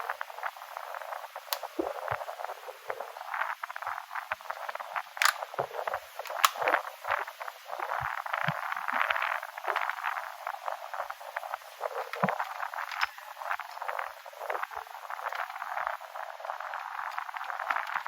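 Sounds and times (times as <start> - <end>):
parts crackling and rustling: 5.0 - 18.0
sharp clicks: 5.2 - 6.8.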